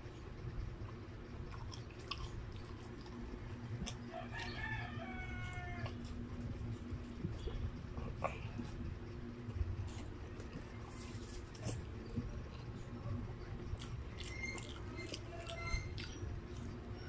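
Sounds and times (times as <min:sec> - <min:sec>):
steady low hum: 0:00.0 - 0:17.0
close-up chewing: 0:00.6 - 0:17.0
rooster crowing: 0:04.0 - 0:06.2.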